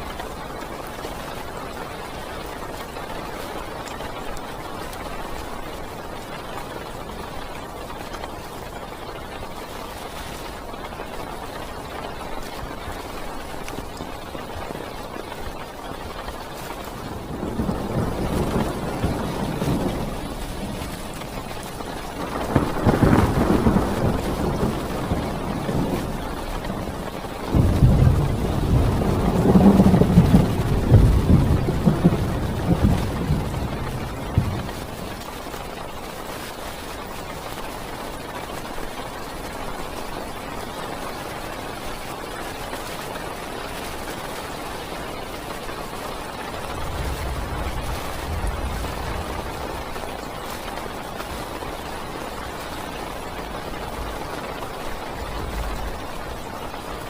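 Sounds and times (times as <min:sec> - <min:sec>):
heavy rain on car roof: 0:00.0 - 0:57.0
rumble of thunder: 0:16.7 - 0:35.3, 0:46.5 - 0:51.0.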